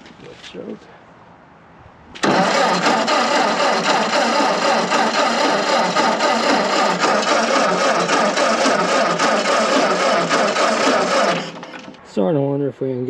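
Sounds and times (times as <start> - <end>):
gasoline engine starting and running: 2.2 - 12.1.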